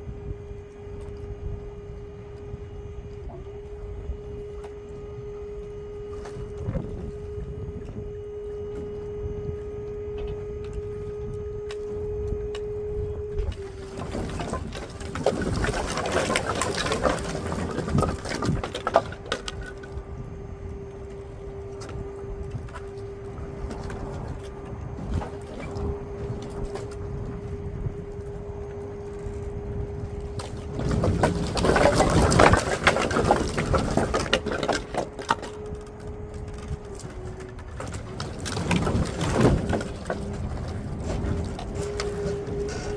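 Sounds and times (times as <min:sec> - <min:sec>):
hydraulic pump whining: 0:00.0 - 0:42.9
firewood clattering: 0:13.4 - 0:28.8, 0:30.0 - 0:42.9.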